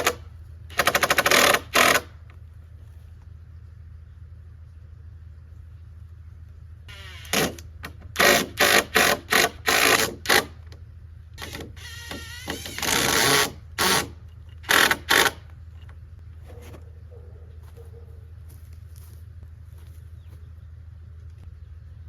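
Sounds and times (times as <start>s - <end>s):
power drill bursts: 0.0s - 2.1s, 6.9s - 10.6s, 11.4s - 15.4s.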